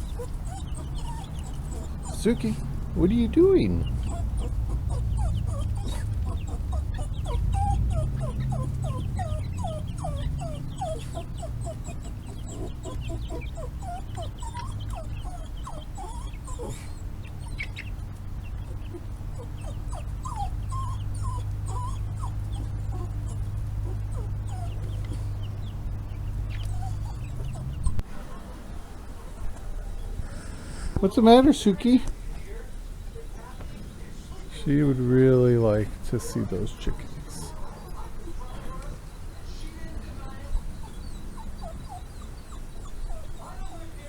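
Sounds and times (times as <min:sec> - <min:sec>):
dog whining: 0:00.0 - 0:17.9, 0:18.6 - 0:25.8, 0:26.4 - 0:28.0, 0:40.2 - 0:44.0
steady low rumble: 0:00.0 - 0:31.0.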